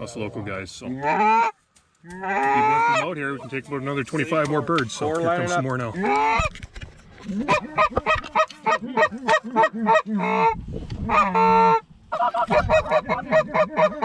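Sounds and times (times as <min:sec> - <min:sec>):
goose call honks and clucks: 0:00.9 - 0:03.5, 0:04.9 - 0:06.5, 0:07.2 - 0:14.0.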